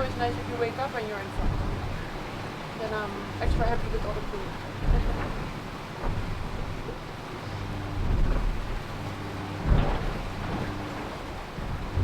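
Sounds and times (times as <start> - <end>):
low hum: 0.0 - 12.0
rumbling wind: 0.0 - 12.0
water noise: 0.0 - 12.0
heavy thump: 1.4 - 2.0, 3.4 - 7.0, 9.6 - 10.8, 11.6 - 12.0.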